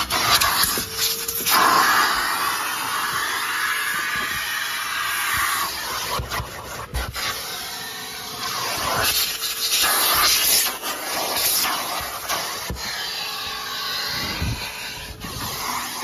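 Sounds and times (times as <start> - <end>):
vacuum cleaner suction: 0.0 - 16.0.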